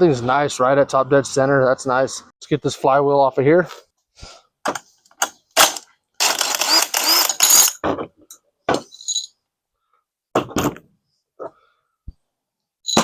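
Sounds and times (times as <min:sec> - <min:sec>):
socket wrench ratcheting: 0:05.7 - 0:07.8.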